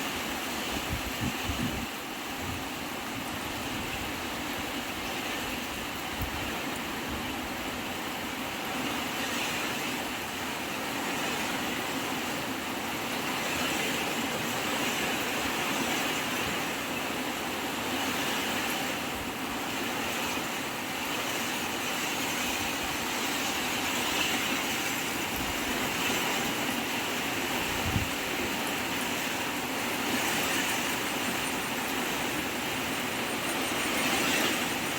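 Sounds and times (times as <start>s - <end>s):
strong wind rushing: 0.6s - 2.8s, 22.1s - 34.9s.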